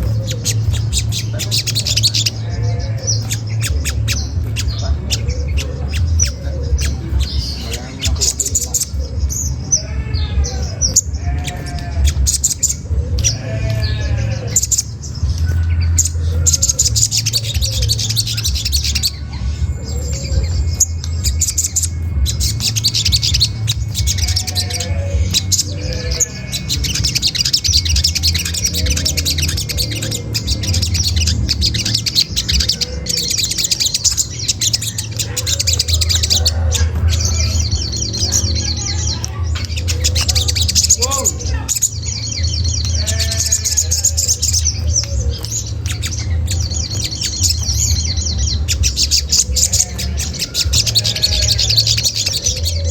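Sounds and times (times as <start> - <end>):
bird chattering calls: 0.0 - 52.9
steady low hum: 0.0 - 52.9.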